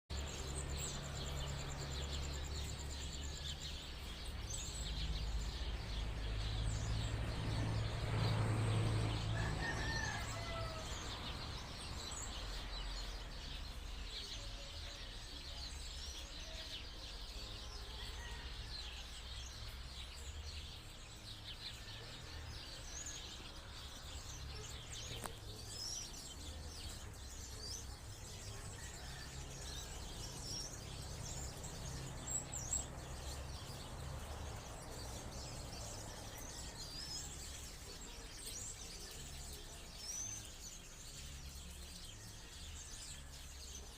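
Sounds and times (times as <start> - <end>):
birds chirping and calling: 0.1 - 43.9.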